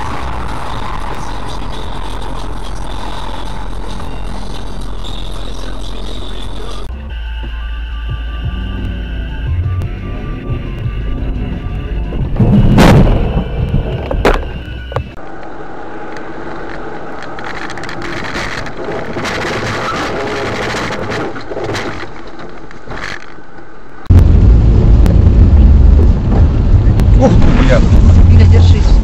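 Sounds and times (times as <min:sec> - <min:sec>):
engine and road rumble: 0:00.0 - 0:29.0
loud collision bang: 0:12.3 - 0:14.6
hissy road noise: 0:14.6 - 0:20.5
loud low rumble: 0:24.0 - 0:29.0.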